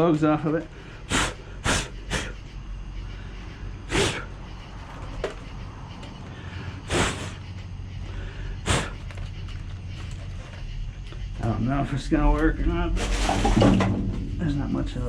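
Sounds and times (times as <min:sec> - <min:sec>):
low background hum: 0:00.0 - 0:15.0
man blowing sharp puffs: 0:00.8 - 0:11.3.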